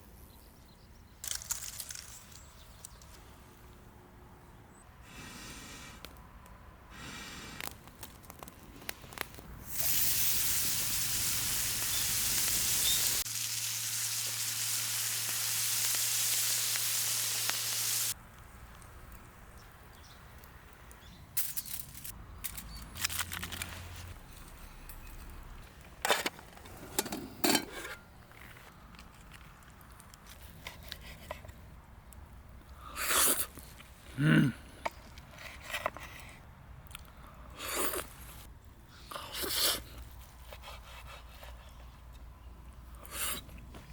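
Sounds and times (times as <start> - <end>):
meat sizzling over a fire: 9.6 - 18.2.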